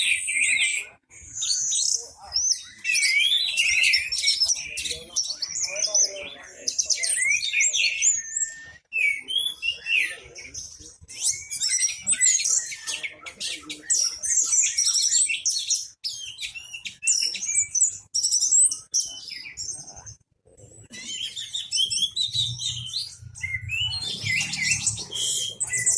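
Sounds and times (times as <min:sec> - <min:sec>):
thrush singing: 0:22.8 - 0:25.9.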